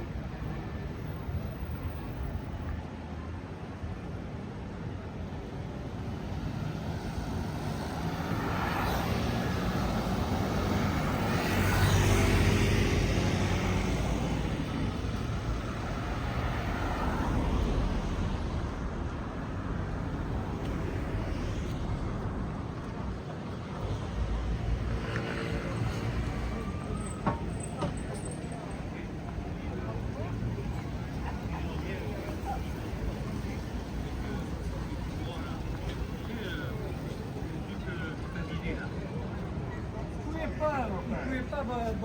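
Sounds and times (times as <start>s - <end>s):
road traffic passing: 3.8s - 42.0s
vehicle passing by: 6.3s - 37.8s.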